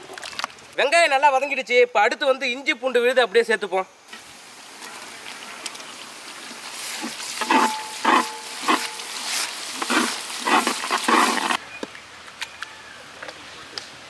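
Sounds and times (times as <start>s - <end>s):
onions sizzling in hot oil: 4.1s - 11.6s
metal ladle scraping pot: 6.9s - 11.6s
pot metallic ring: 7.4s - 9.3s.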